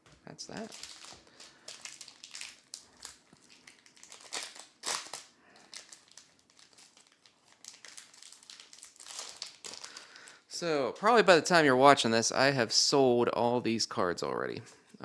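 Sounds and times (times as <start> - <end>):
foil wrapper crinkling: 0.5 - 10.4.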